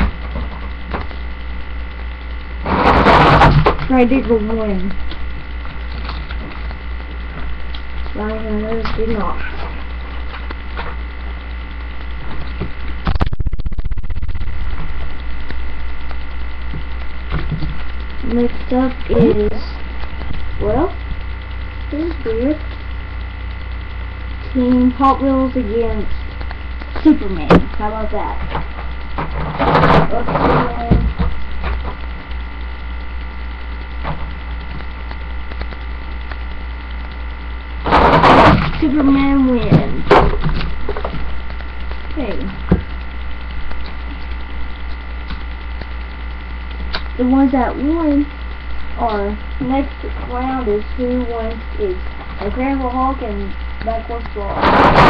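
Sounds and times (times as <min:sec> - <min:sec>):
electrical mains hum: 0:00.0 - 0:55.0
rapid rattling clicks: 0:00.0 - 0:55.0.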